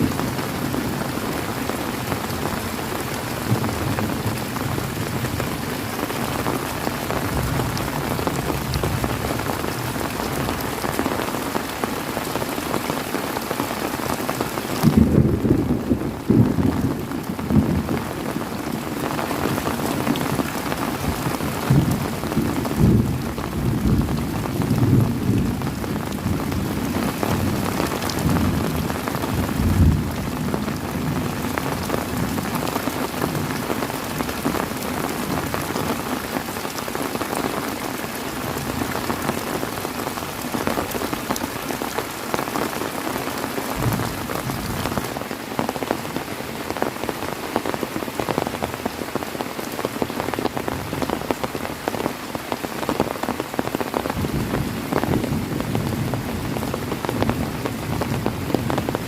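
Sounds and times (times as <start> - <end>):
heavy rain: 0.0 - 59.0
rolling thunder: 14.8 - 18.0.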